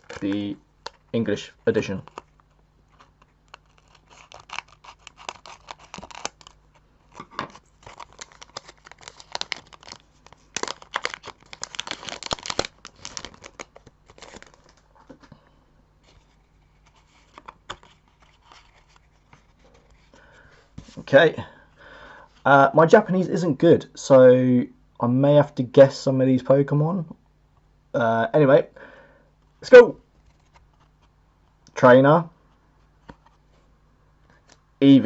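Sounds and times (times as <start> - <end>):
foil wrappers crinkling: 0.0 - 0.4, 1.9 - 14.9.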